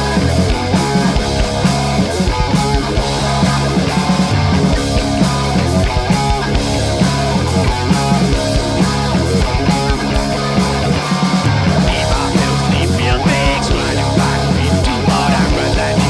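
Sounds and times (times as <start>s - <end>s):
bass guitar: 0.0s - 16.0s
distorted electric guitars: 0.0s - 16.0s
drums: 0.0s - 16.0s.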